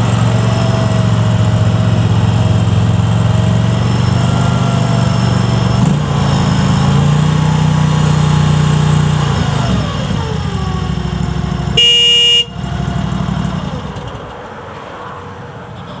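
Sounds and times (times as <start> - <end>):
loader engine running: 0.0 - 14.5
short horn beep: 11.8 - 12.7.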